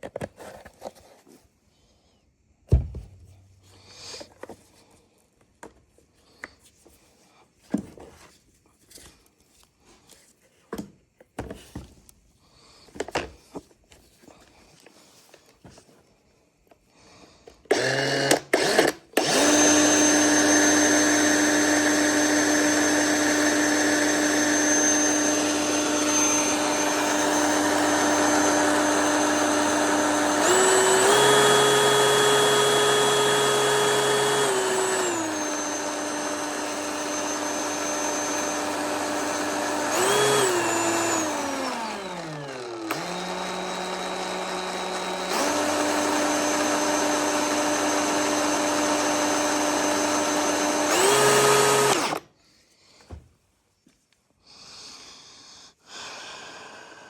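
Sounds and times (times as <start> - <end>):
electric chainsaw motor whining: 17.7 - 52.3.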